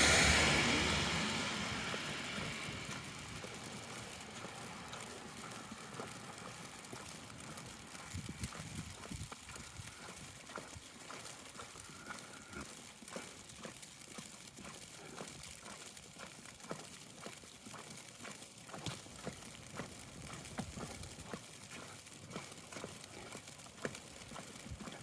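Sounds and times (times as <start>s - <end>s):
passing vehicle: 0.0s - 8.5s
footsteps on snow: 0.2s - 16.1s.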